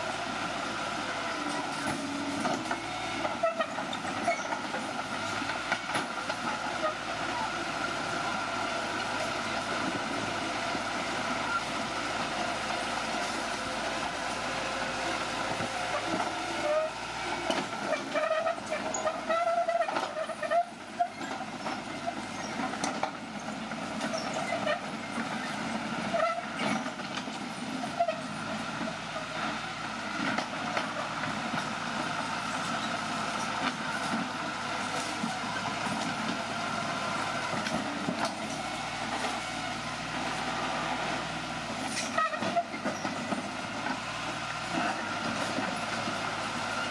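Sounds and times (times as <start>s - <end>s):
bulldozer engine running: 0.0s - 46.9s
metallic track squeals and clanks: 1.4s - 7.5s, 11.3s - 12.0s, 15.0s - 28.6s, 41.8s - 46.9s.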